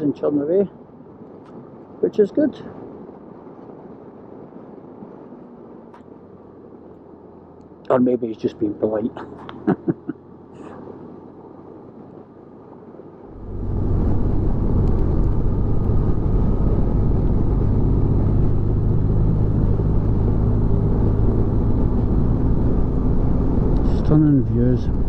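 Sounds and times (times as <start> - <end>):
road noise: 0.0 - 25.0
wind noise: 0.0 - 25.0
motorcycle engine cruising: 13.3 - 25.0.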